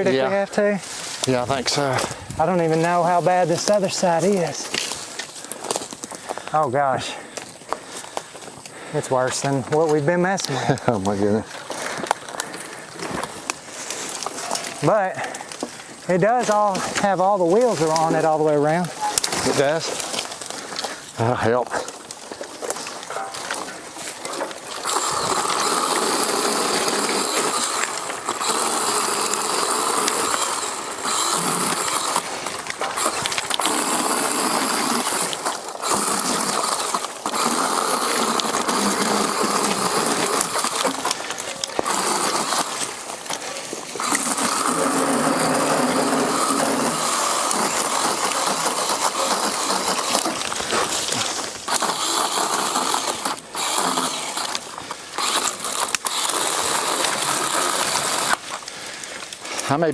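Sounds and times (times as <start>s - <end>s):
chainsaw cutting brush: 0.0s - 59.9s.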